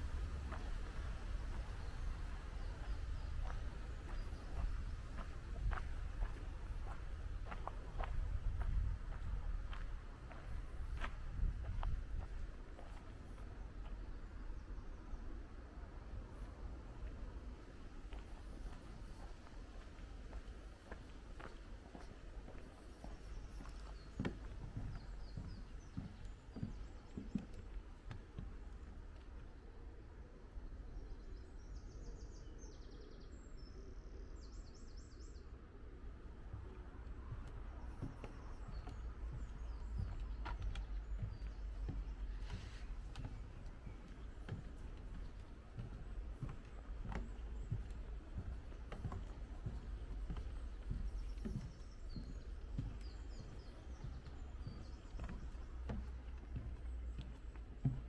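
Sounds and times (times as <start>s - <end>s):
footsteps walking: 0.0s - 14.0s, 17.0s - 29.0s, 36.5s - 58.0s
small birds chirping: 0.0s - 15.3s, 16.4s - 30.0s, 36.2s - 58.0s
low outdoor rumble: 0.0s - 31.7s.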